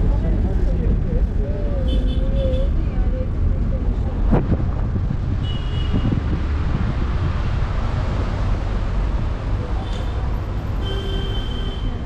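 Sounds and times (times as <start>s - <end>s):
road noise inside moving car: 0.0s - 12.0s
wind buffeting microphone: 3.3s - 9.2s.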